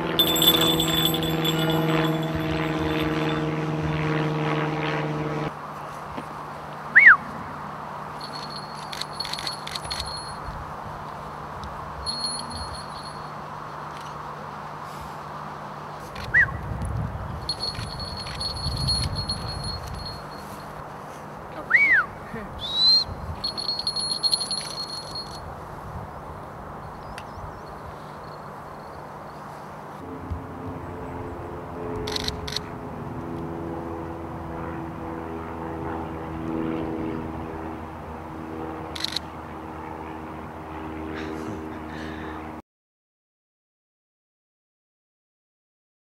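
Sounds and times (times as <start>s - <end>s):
small bell jingling: 0.0s - 3.5s, 8.2s - 10.6s, 12.0s - 13.4s, 17.4s - 20.8s, 23.4s - 25.5s.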